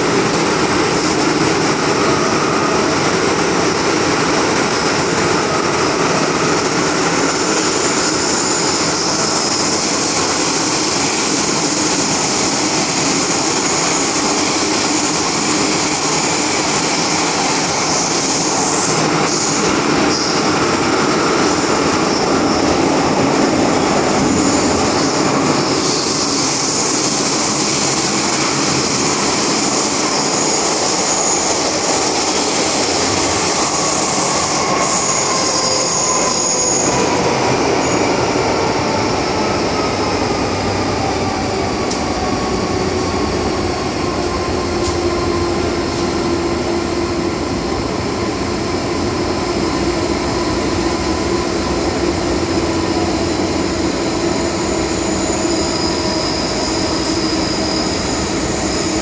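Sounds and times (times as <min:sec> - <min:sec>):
train wheels rumbling on rails: 0:00.0 - 0:59.0
high-pitched wheel squeal: 0:33.5 - 0:37.1, 0:54.2 - 0:59.0.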